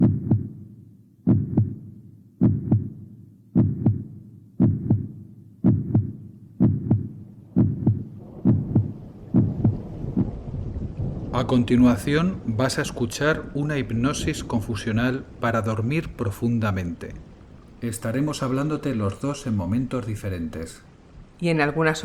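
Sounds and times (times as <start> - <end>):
heartbeat thumping: 0.0 - 11.3
rain hissing: 7.9 - 22.0.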